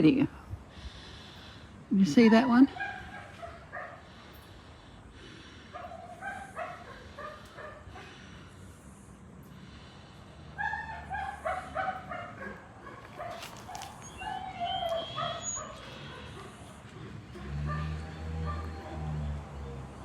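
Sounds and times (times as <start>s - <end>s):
dog whimpering and yipping: 10.6s - 19.9s.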